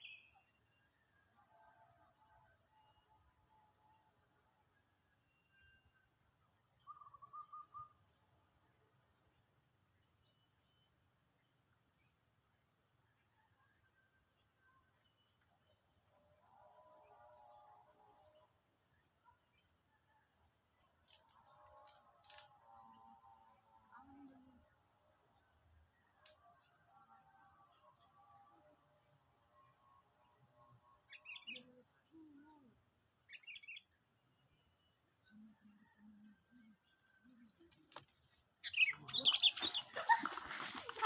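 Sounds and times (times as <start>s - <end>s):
bird trill: 6.8s - 8.0s, 31.1s - 31.6s, 33.3s - 33.8s, 38.6s - 40.8s
soft bird chirps: 6.8s - 8.0s, 31.1s - 32.5s, 33.3s - 33.9s, 38.6s - 40.7s
high-pitched insect drone: 29.5s - 34.0s.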